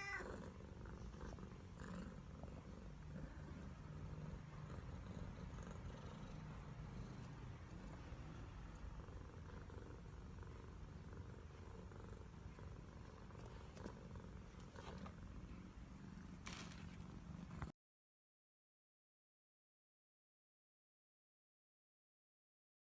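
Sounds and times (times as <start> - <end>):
cat purring: 0.0 - 17.7
faint clicks or rustles: 16.4 - 17.7.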